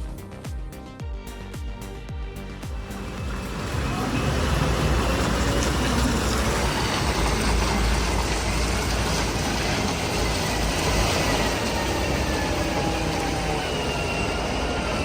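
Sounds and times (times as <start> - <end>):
heavy vehicle rumble: 1.3 - 15.0
faint high squeal: 9.5 - 15.0.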